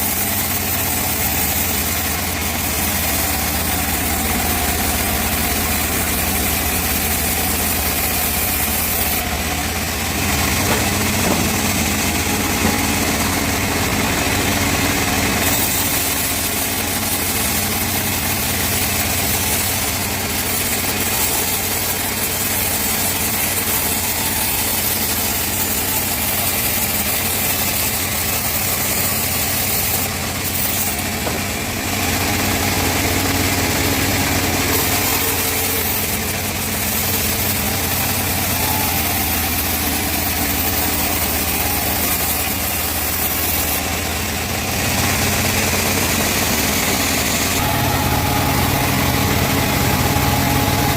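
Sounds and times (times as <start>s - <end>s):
saw cutting logs hiss: 0.0s - 50.9s
sawmill drive engine running: 0.0s - 50.9s.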